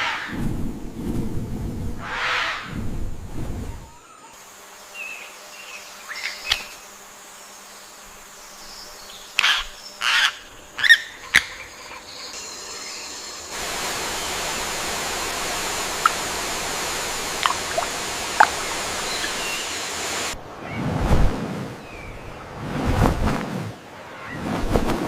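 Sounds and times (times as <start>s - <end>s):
insect whine: 2.4s - 20.4s
sharp bird calls: 8.8s - 13.5s
flowing water rushing: 13.3s - 20.4s.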